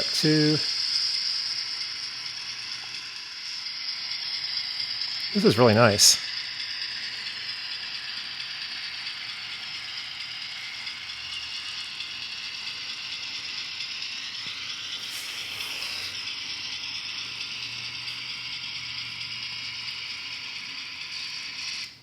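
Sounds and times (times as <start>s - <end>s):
thin diesel engine sound from speaker: 0.0s - 0.8s, 5.2s - 8.0s
small motor and gears clattering: 0.0s - 22.0s.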